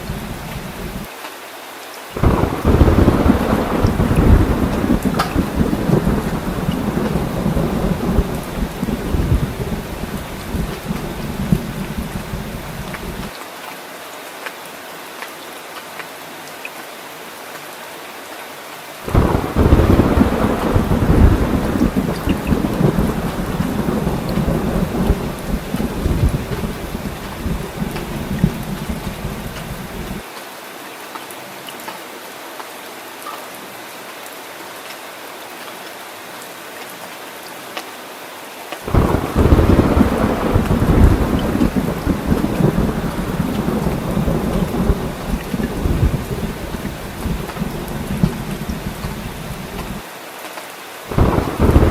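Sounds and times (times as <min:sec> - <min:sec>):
heavy rain hissing: 0:00.0 - 0:15.1, 0:17.0 - 0:30.3, 0:38.0 - 0:51.9
deep thunder rumble: 0:02.2 - 0:13.3, 0:19.1 - 0:30.2, 0:38.9 - 0:50.0, 0:51.1 - 0:51.9.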